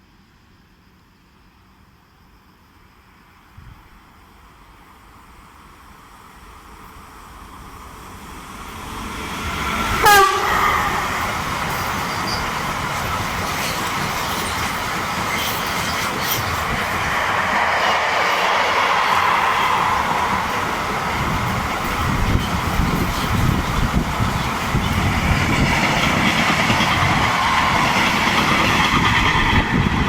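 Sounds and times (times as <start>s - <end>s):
train passing at speed: 0.0s - 30.0s
wheels clacking on rails: 8.7s - 30.0s
train horn blast: 10.0s - 11.2s.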